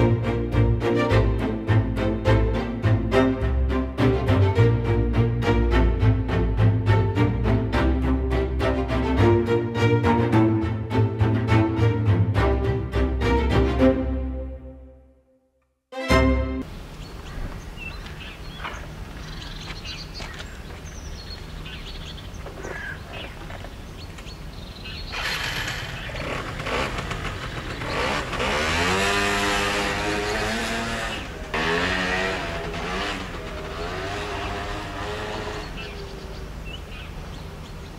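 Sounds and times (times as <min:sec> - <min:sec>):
scooter engine revving: 0:25.1 - 0:37.1.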